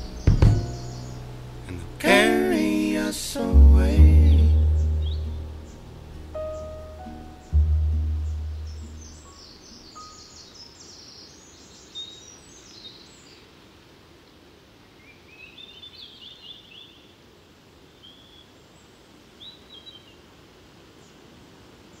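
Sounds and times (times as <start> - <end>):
birds singing: 0.0 - 1.4, 4.1 - 13.4
low background noise: 0.0 - 22.0.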